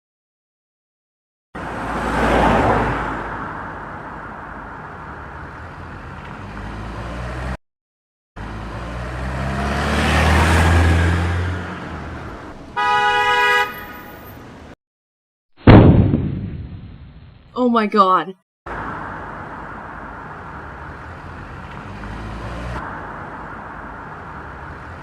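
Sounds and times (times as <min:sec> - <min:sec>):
vehicle engine passing by: 0:05.5 - 0:07.6, 0:08.4 - 0:13.4, 0:18.7 - 0:25.0
horn honk: 0:12.3 - 0:14.5.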